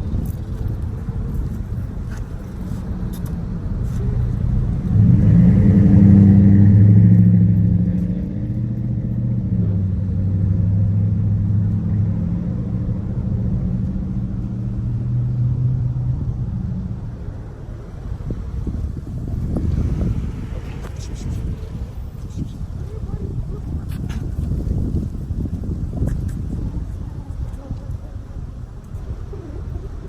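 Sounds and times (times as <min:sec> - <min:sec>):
road noise: 0:00.0 - 0:30.0
car engine running: 0:03.8 - 0:26.8.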